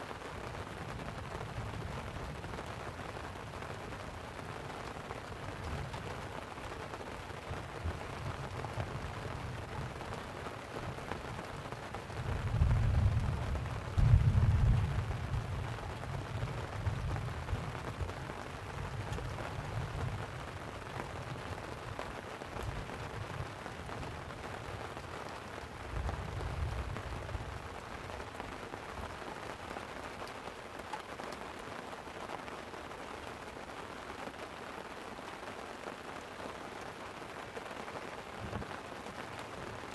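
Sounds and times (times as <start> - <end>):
light rain on a tent: 0.0 - 39.9
thunder rumbling: 12.2 - 20.3.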